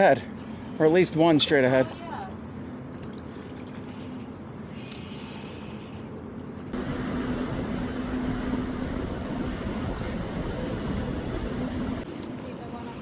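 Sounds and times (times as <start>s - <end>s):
outdoor background noise: 0.0s - 13.0s
low engine hum: 6.7s - 12.0s.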